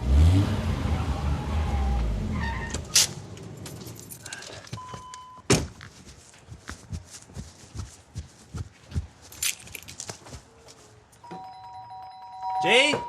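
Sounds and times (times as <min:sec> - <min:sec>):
sharp thunks: 0:05.4 - 0:05.9.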